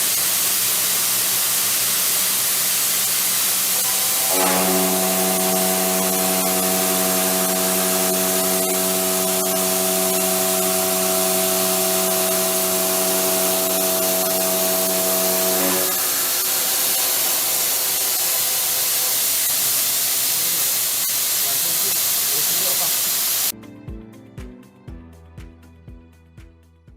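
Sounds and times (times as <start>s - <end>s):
loud constant hiss: 0.0s - 23.5s
milling machine cutting tone: 3.4s - 23.5s.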